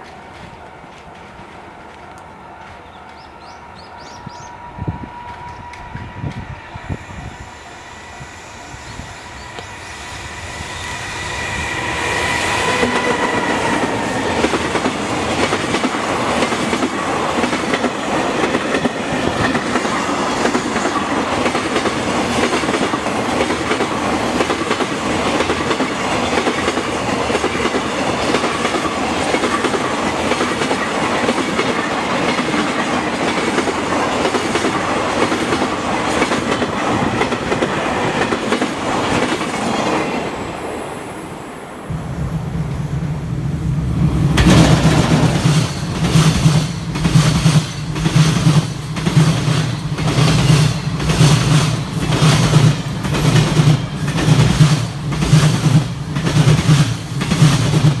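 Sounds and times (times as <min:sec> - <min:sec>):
electric locomotive whine: 0:00.0 - 0:58.0
train wheels clattering over rail joints: 0:44.2 - 0:58.0.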